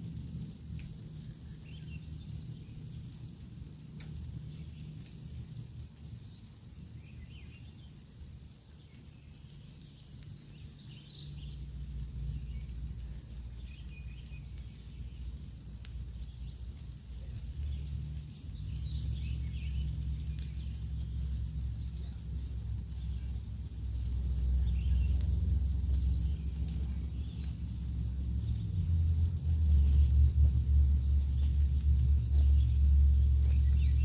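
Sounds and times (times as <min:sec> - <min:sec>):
low rumble: 0:00.0 - 0:07.6, 0:09.6 - 0:34.0
campfire crackling and popping: 0:00.0 - 0:34.0
small birds chirping: 0:00.0 - 0:34.0.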